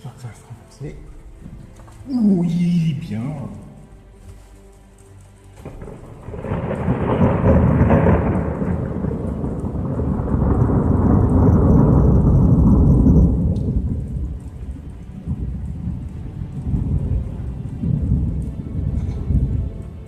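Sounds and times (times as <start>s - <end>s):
rain falling: 0.0s - 20.0s
rolling rumble of thunder: 5.6s - 20.0s.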